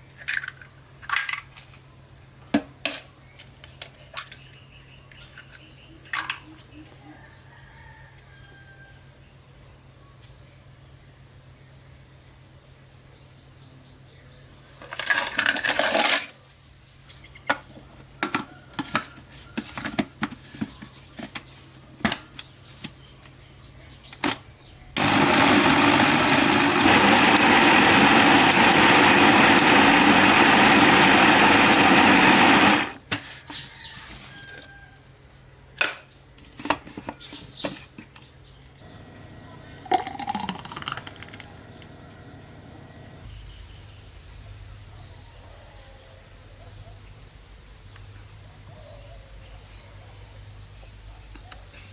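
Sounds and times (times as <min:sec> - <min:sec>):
electric blender running: 0:25.0 - 0:33.0, 0:38.8 - 0:43.3.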